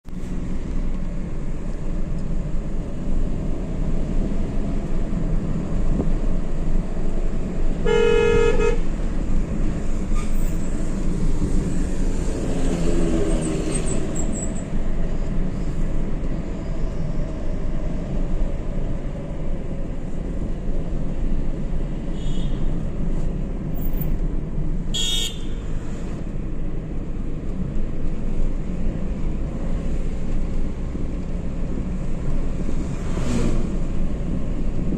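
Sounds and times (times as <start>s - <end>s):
vehicle and road noise: 0.0s - 34.9s
vehicle horn honking: 7.8s - 8.8s, 25.0s - 25.7s.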